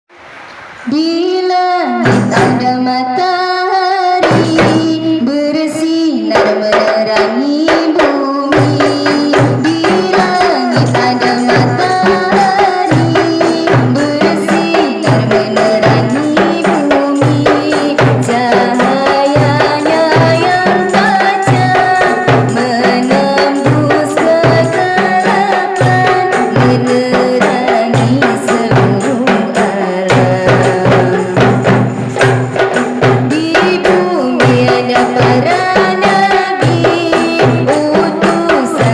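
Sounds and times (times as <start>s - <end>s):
hand drums beat: 2.0s - 2.8s, 4.2s - 5.2s, 6.3s - 38.9s
instrumental melody line: 8.6s - 38.9s
tambourine jingles: 8.8s - 27.2s.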